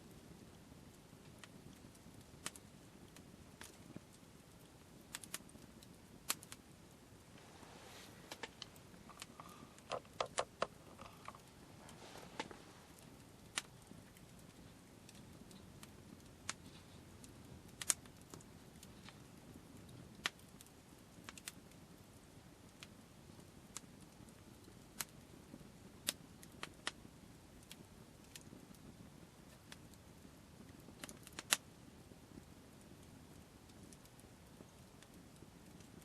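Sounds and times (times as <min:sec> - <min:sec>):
low steady background: 0:00.0 - 0:36.0
soft rustling: 0:07.2 - 0:14.8
sharp clicks and pops: 0:08.3 - 0:14.4, 0:17.7 - 0:19.2.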